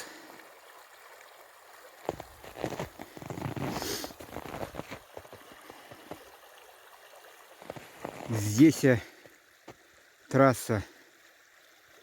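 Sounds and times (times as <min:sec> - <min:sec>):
faint river rushing: 0:00.0 - 0:12.0
crackling and rustling: 0:02.0 - 0:06.2, 0:07.6 - 0:08.3.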